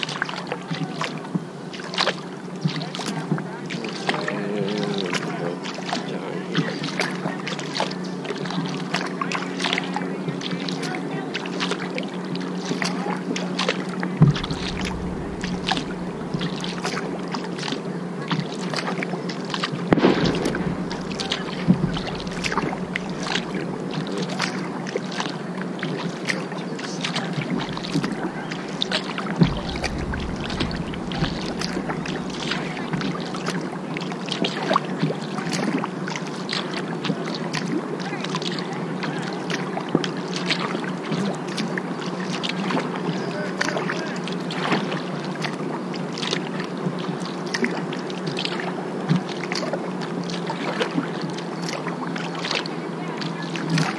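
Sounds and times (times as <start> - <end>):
low hum: 14.2 - 18.0, 19.9 - 25.2, 27.1 - 34.4
paddle splashing water: 18.5 - 36.7.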